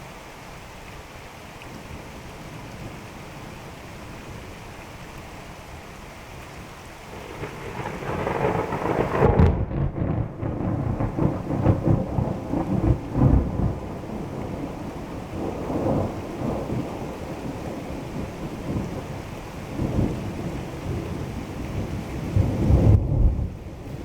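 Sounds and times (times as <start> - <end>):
steady rain: 0.0 - 24.0
thunder rumbling: 7.1 - 24.0.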